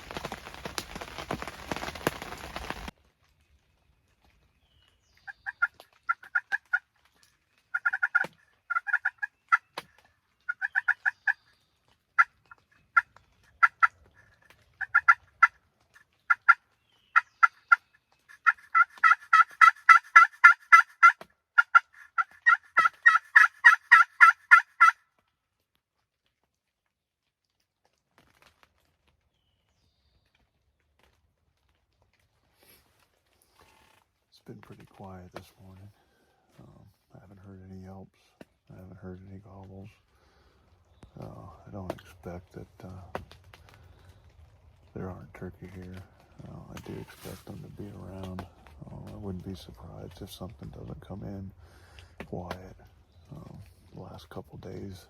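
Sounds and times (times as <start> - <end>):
turkey yelping: 7.7 - 9.6, 10.5 - 11.4, 12.2 - 15.6, 16.3 - 25.0.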